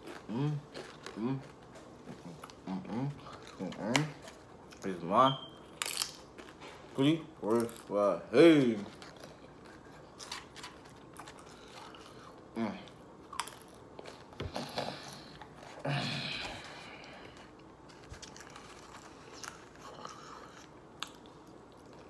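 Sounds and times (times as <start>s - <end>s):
chewing and mouth sounds: 0.0s - 8.0s, 8.6s - 15.8s, 16.4s - 22.0s.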